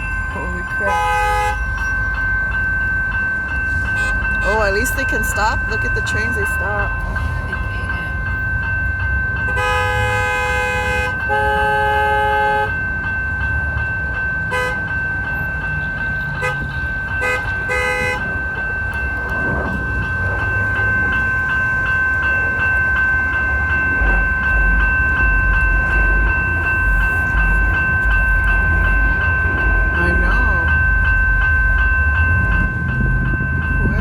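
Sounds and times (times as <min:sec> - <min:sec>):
continuous high tone: 0:00.0 - 0:34.0
train horn blasts: 0:00.4 - 0:01.8, 0:09.5 - 0:12.8, 0:14.5 - 0:14.8, 0:16.4 - 0:18.4
steady low rumble: 0:16.9 - 0:34.0.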